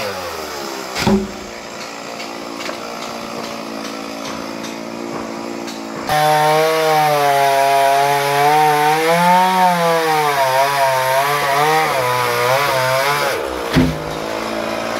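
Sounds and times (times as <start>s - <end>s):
chainsaw cutting wood: 0.0s - 14.9s.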